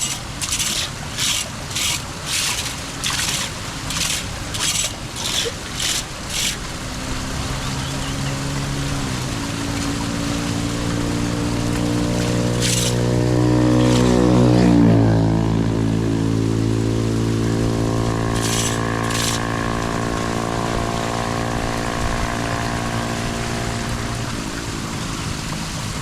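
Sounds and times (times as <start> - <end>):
vehicle engine passing by: 6.9 - 24.3.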